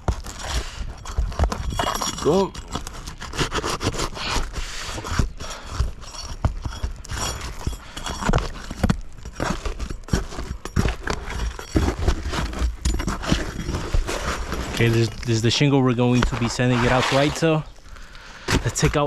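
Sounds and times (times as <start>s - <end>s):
roof shingle scraping and cracking: 0.0s - 19.0s.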